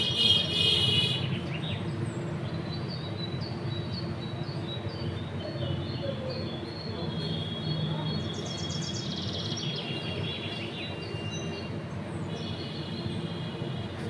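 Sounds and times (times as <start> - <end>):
small birds chirping: 0.0 - 13.6.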